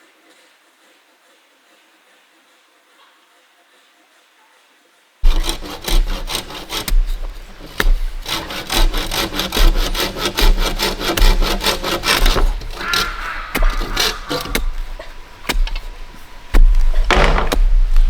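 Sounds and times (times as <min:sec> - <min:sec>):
hand saw cutting bamboo: 0:05.2 - 0:18.0.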